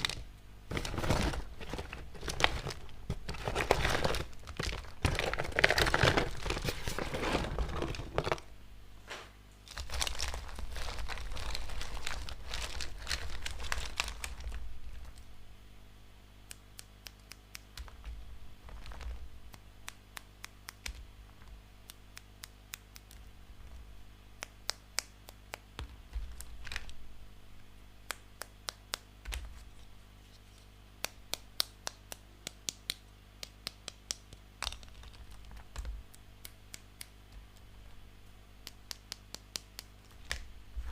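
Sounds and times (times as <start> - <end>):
plastic packaging crinkling: 0.0 - 8.5, 9.7 - 15.3, 18.6 - 19.3.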